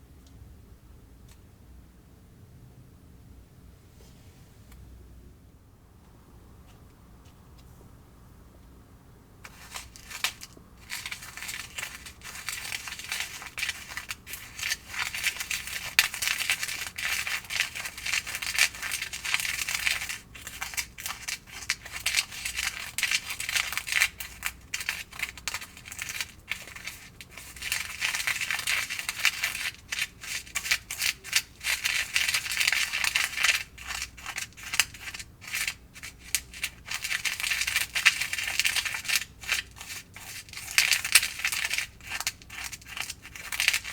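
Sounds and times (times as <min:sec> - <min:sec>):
plastic spoon scraping plastic tray: 0:09.5 - 0:43.9.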